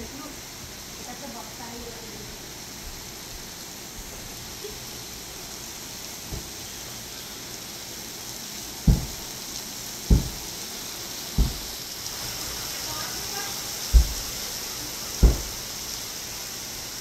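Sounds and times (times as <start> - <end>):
heavy rain on pavement: 0.0 - 17.0
dull thumps: 8.8 - 9.3, 10.1 - 10.6, 11.4 - 11.8, 13.9 - 14.3, 15.2 - 15.6.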